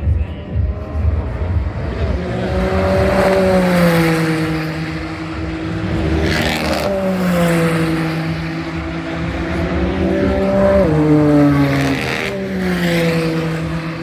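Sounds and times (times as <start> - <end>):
race car engines passing: 0.0 - 14.0.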